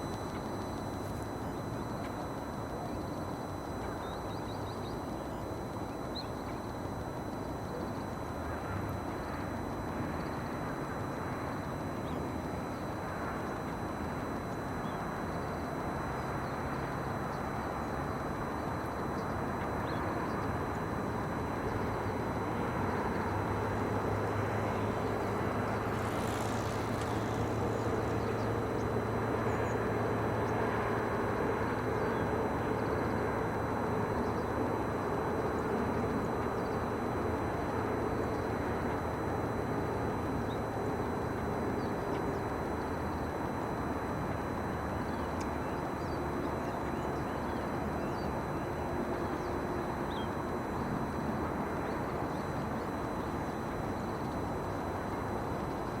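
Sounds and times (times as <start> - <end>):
low engine drone: 0.0 - 56.0
distant traffic rumble: 22.7 - 34.1.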